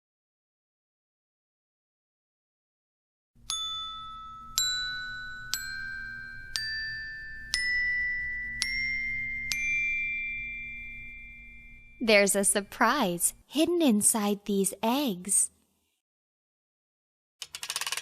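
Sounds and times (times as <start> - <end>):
glockenspiel notes climbing a scale: 3.4 - 12.9.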